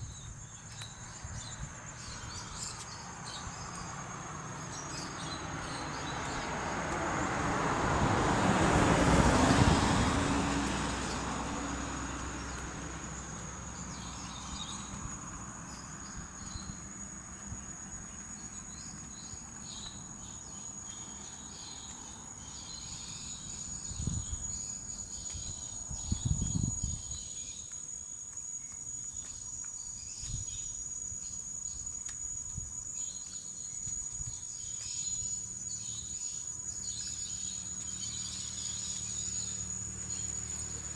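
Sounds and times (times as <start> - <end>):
insects chirring: 10.7 - 40.9.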